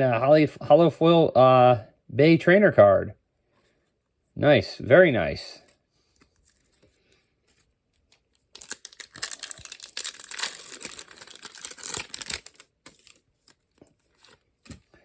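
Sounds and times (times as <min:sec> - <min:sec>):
foil wrapper crinkling: 0:08.0 - 0:14.8.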